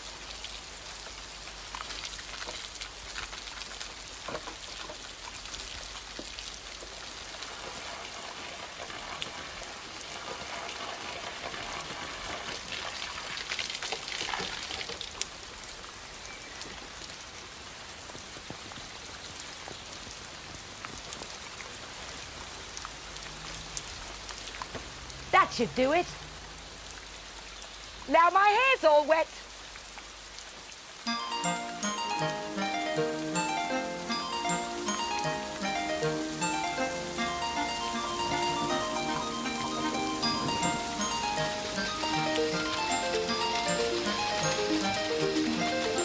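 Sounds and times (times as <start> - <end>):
rain pattering: 0.0 - 46.0
water drips and taps: 1.0 - 7.0, 24.2 - 25.2.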